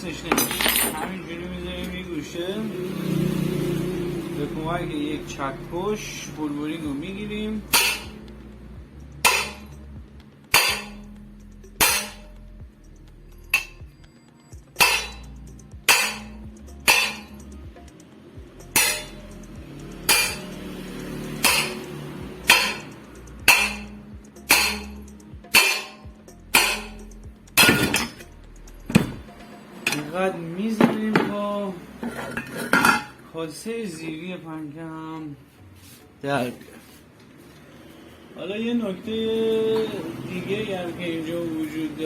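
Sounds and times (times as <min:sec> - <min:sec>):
hammer striking metal bearing: 0:07.6 - 0:08.3, 0:09.2 - 0:09.9, 0:10.5 - 0:12.4, 0:13.5 - 0:13.8, 0:14.7 - 0:17.6, 0:18.6 - 0:19.3, 0:20.0 - 0:20.6, 0:21.3 - 0:28.3.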